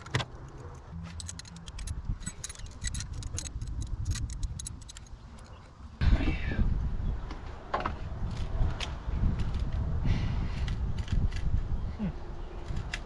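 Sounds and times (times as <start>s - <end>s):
metallic clicks of hand tools: 0.0s - 5.6s.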